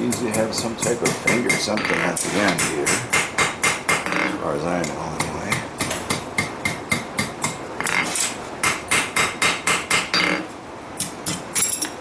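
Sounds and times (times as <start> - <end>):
hammer striking steel on anvil: 0.0 - 4.1, 4.8 - 7.6, 8.6 - 10.2.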